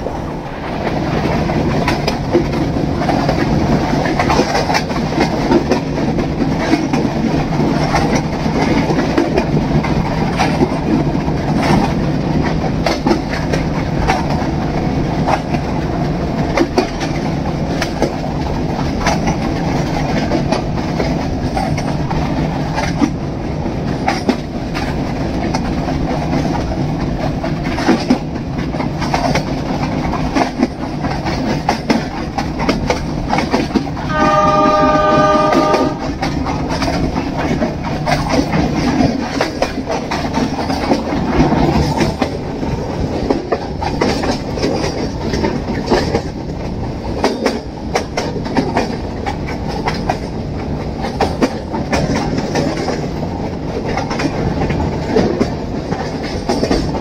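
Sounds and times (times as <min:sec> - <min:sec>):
train rumbling: 0:00.0 - 0:57.0
wheels clicking over rail joints: 0:00.0 - 0:57.0
train horn: 0:34.0 - 0:36.4.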